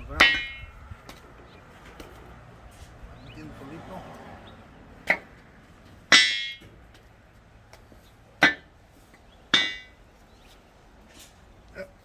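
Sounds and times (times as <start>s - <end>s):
hammer clanging on metal: 0.0s - 1.2s, 6.1s - 6.8s, 8.4s - 8.7s, 9.5s - 10.0s.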